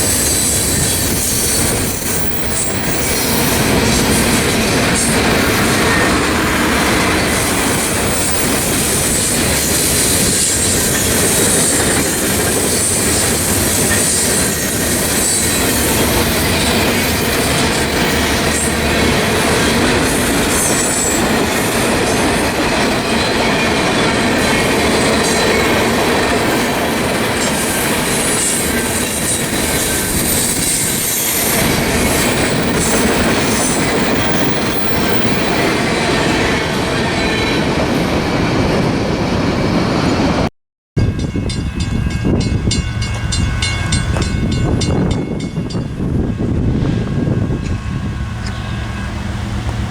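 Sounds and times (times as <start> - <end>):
high wheel squeal: 0.0 - 22.4, 23.2 - 37.8, 47.7 - 49.9
freight train wheels clattering: 0.0 - 38.3.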